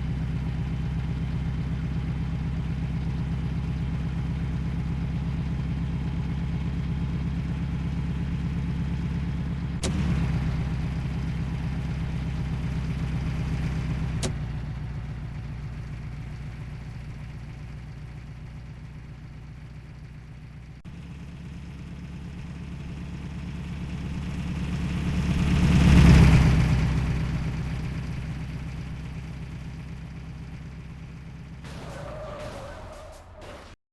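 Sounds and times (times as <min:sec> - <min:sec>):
truck engine running: 0:00.0 - 0:33.8
truck passing by: 0:20.9 - 0:33.8.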